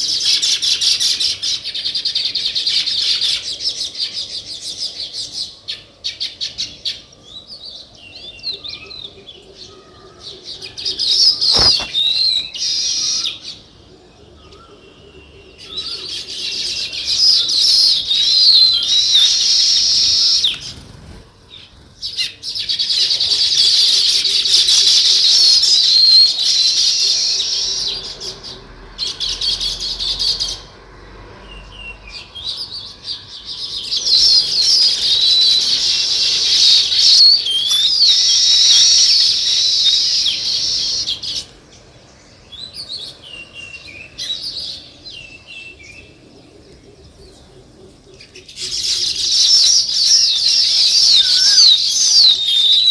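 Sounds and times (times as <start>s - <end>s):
flock of small birds chirping: 0.0s - 52.9s
sharp click: 11.4s - 12.0s.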